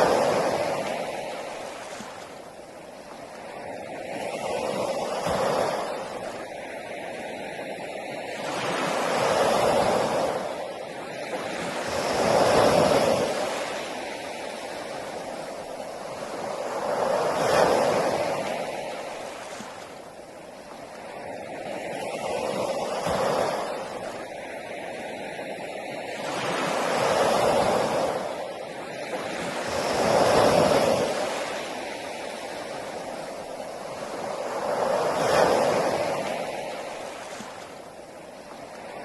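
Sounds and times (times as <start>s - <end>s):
sea waves washing on shore: 0.0s - 39.0s.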